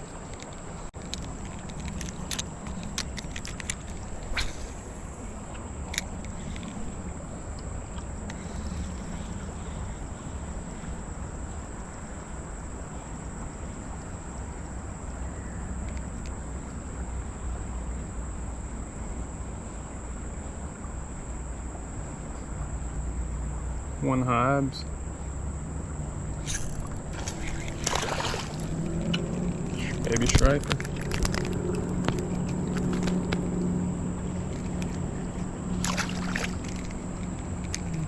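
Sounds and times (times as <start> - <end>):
insects chirring: 0.0 - 38.0
low outdoor rumble: 0.0 - 38.0
sharp click: 1.1 - 5.2, 26.4 - 28.0.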